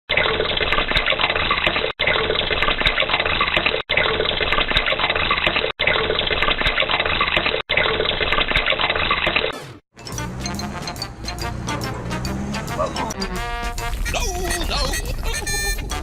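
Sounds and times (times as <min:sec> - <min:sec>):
water pouring: 0:00.1 - 0:09.5.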